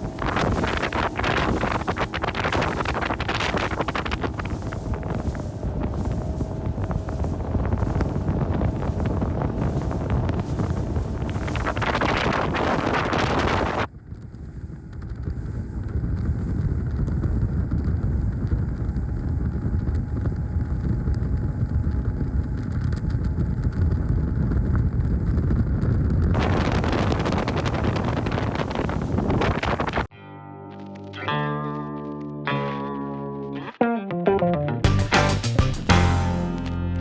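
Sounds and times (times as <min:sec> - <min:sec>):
wind buffeting microphone: 0:00.0 - 0:30.1.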